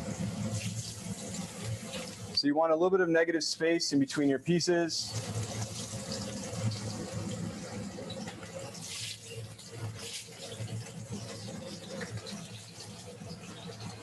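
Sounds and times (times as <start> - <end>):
cutlets sizzling in hot oil: 0.0 - 2.4, 5.0 - 14.0.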